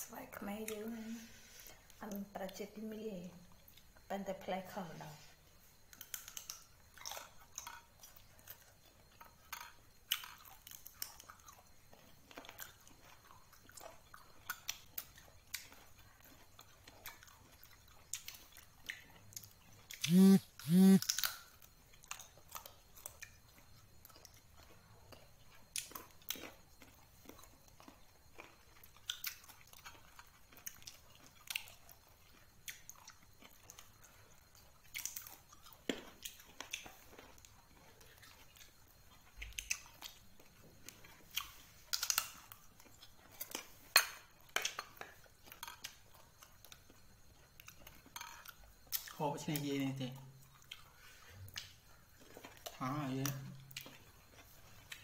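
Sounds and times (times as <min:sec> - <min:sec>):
chewing mouth sounds: 0:06.0 - 0:21.3, 0:21.9 - 0:49.2, 0:50.4 - 0:55.0
short loud pitched sounds: 0:20.0 - 0:21.0.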